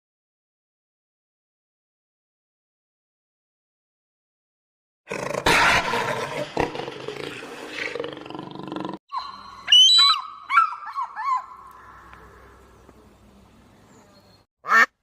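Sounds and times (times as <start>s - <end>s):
big cat roaring: 5.1s - 9.0s.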